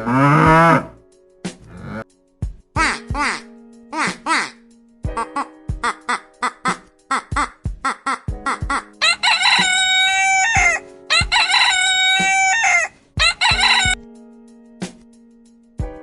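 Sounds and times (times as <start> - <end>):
plucked background music: 0.0 - 16.0
rooster crowing: 9.0 - 14.0.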